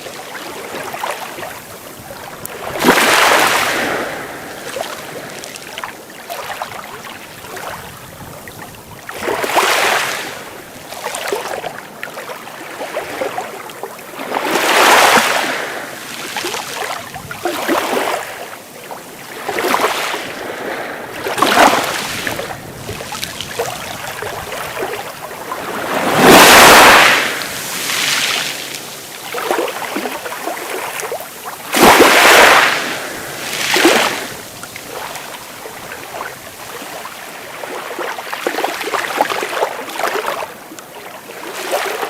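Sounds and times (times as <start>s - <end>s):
sea waves breaking on shore: 0.0s - 42.0s.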